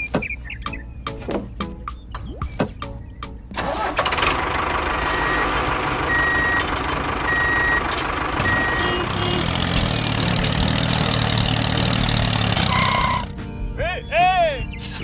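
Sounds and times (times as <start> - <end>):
engine rumble: 0.0 - 13.6
truck reversing alarm beeping: 4.8 - 9.6, 12.6 - 13.3.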